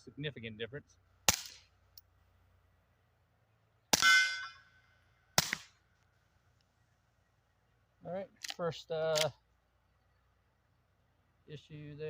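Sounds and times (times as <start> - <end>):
suppressed pistol shots: 1.3 - 1.7, 5.4 - 5.8
ringing metallic clang: 4.0 - 4.8.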